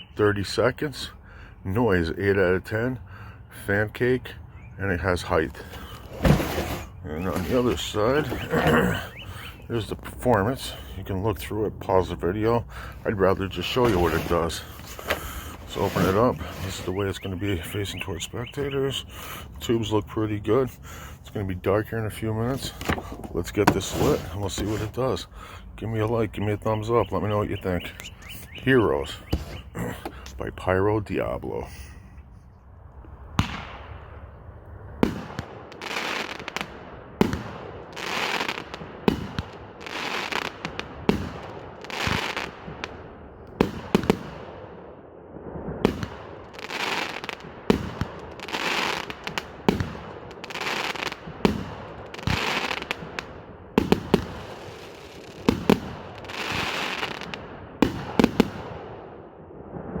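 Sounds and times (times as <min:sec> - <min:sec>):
firework shot reports: 0:05.3 - 0:25.3
firework hissing and crackling: 0:12.9 - 0:16.9, 0:46.6 - 0:53.1, 0:53.8 - 0:57.4.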